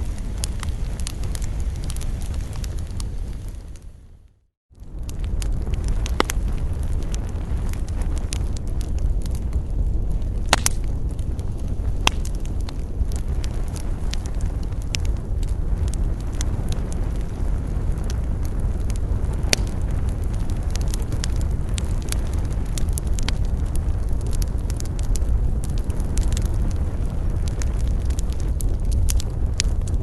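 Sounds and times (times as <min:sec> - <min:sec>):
campfire crackling and popping: 0:00.0 - 0:04.1, 0:04.8 - 0:30.0
low rumble: 0:00.0 - 0:30.0.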